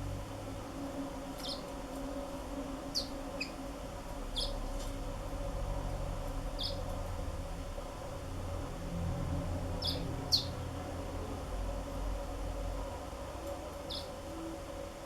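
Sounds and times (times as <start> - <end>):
steady low hum: 0.0 - 15.0
canary chirps: 1.4 - 1.7, 2.9 - 3.6, 4.3 - 4.6, 6.5 - 6.8, 9.8 - 10.6, 13.9 - 14.2.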